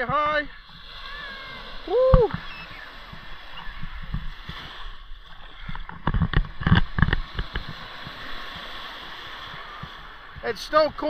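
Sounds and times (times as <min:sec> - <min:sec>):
sea water washing on shore: 0:00.0 - 0:11.0
wind rumbling on microphone: 0:00.0 - 0:11.0.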